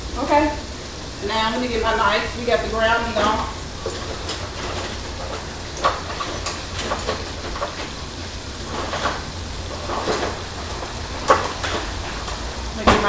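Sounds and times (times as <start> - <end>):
food sizzling in hot oil: 0.0 - 9.8
oil popping and crackling: 0.0 - 13.0.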